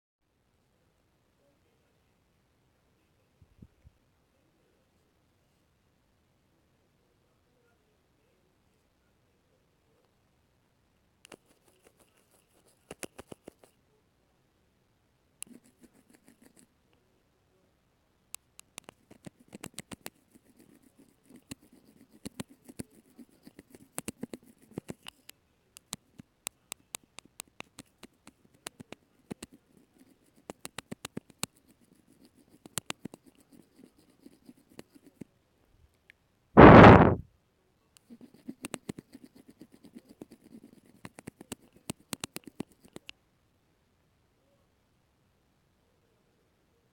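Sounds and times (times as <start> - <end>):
soft taps clicks and scratches: 11.3 - 13.8, 15.4 - 16.7, 18.4 - 35.3, 38.0 - 43.2
bump on microphone: 36.6 - 37.2.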